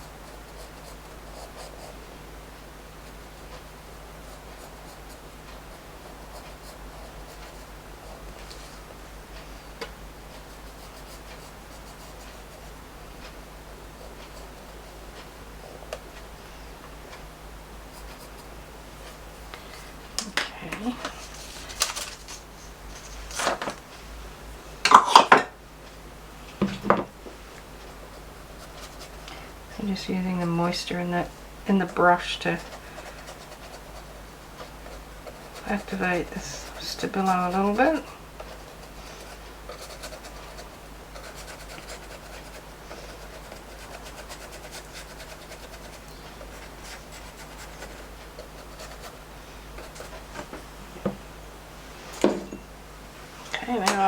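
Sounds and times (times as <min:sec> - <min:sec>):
small knock: 0:26.6 - 0:27.1
paintbrush rubbing over paper: 0:31.8 - 0:49.2, 0:49.8 - 0:50.3.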